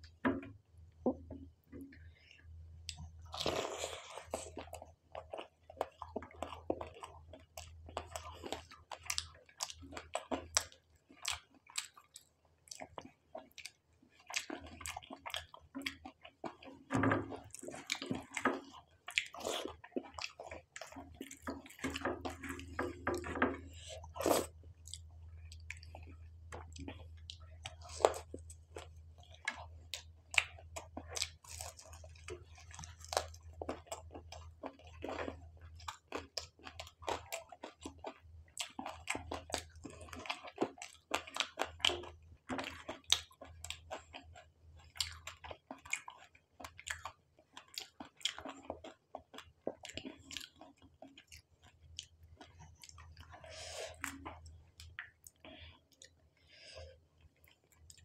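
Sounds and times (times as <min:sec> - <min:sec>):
person crunching fried food: 0:03.2 - 0:07.0, 0:19.1 - 0:21.0, 0:24.0 - 0:41.9.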